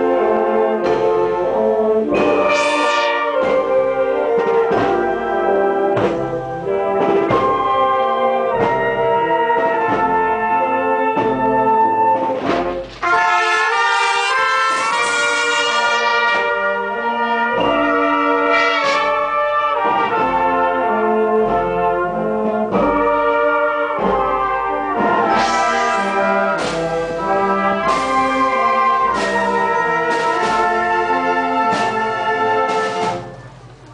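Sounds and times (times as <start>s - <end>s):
brass band playing a march: 0.0s - 33.8s
drum or cymbal strokes: 25.2s - 33.7s.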